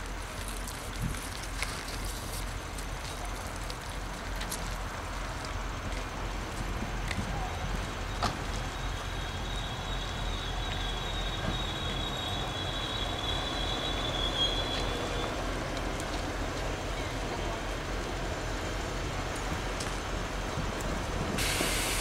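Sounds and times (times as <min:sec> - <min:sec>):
train engine rumble: 0:00.0 - 0:22.0
high brake squeal: 0:08.0 - 0:15.5
short hiss: 0:21.4 - 0:22.0.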